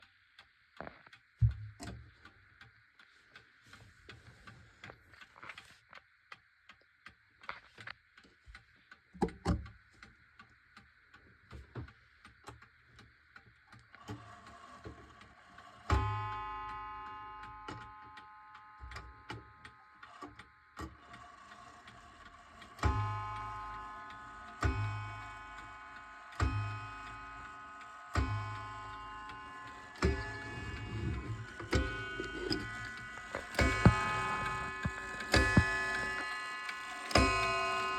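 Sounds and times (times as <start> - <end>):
clock ticking: 0.0 - 37.9
clock striking ringing notes: 15.9 - 19.4, 22.8 - 37.9.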